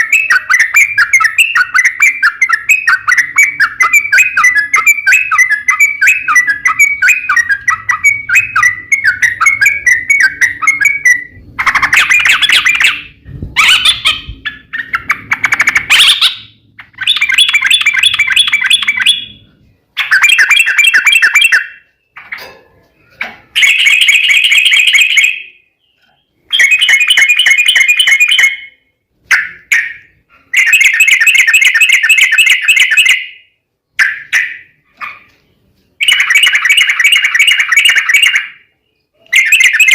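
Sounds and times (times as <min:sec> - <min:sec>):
bird chattering trills: 0:00.0 - 0:22.4
bird warbling: 0:00.0 - 0:33.3.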